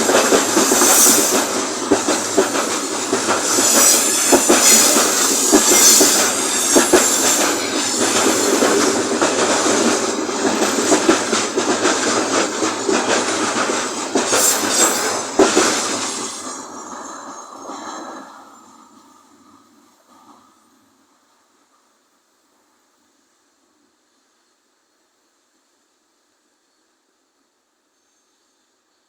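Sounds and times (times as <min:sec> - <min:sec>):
train wheels clattering over rail joints: 0:00.0 - 0:18.1
high wheel squeal: 0:00.5 - 0:08.9, 0:14.3 - 0:17.9.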